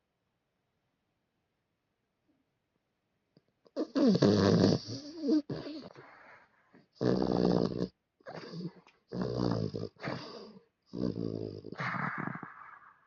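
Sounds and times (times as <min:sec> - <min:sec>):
dog snoring: 0:03.8 - 0:06.4, 0:07.0 - 0:12.9.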